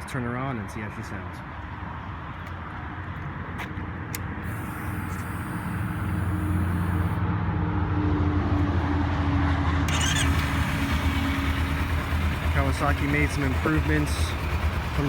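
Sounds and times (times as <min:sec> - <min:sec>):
motorcycle engine idling: 0:04.4 - 0:07.2, 0:09.9 - 0:15.0
starter clicks: 0:09.9 - 0:10.7.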